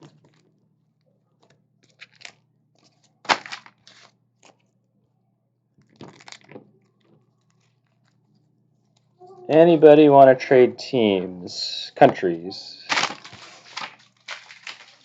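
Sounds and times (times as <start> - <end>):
faint steady hum: 0.0 - 15.0
crinkly packaging crunched: 1.8 - 4.6, 5.8 - 8.2, 12.8 - 15.0.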